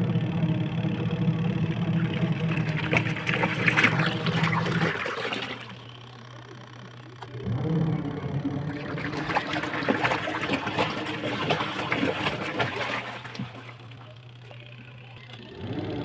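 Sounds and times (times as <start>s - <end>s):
washing machine motor humming: 0.0s - 16.0s
water sloshing: 1.8s - 6.1s, 7.8s - 14.6s.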